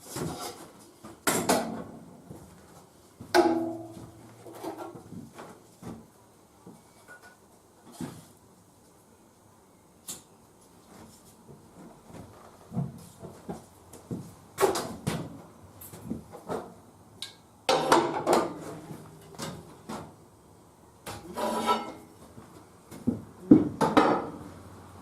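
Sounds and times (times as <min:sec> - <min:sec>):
rattling scrapes: 0:21.3 - 0:22.0
hard objects knocking and clanking: 0:23.0 - 0:24.4.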